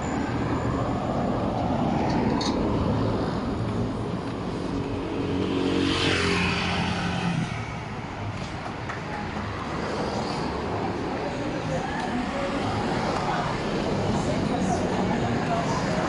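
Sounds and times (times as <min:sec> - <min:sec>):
traffic noise: 0:00.0 - 0:16.0
vehicle passing close by: 0:04.4 - 0:07.9.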